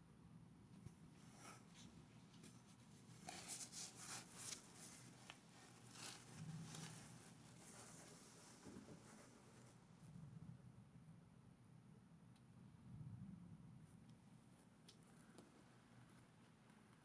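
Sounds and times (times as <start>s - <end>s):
soft crackles: 0.8s - 10.1s.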